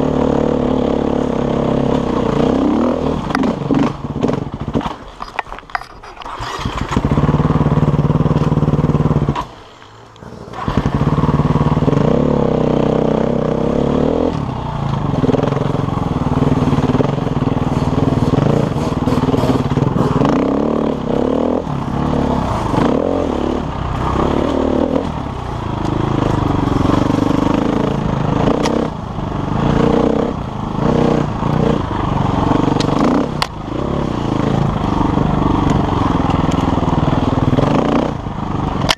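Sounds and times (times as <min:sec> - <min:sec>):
dirt bike engine revving: 0:00.0 - 0:05.1, 0:06.0 - 0:38.9.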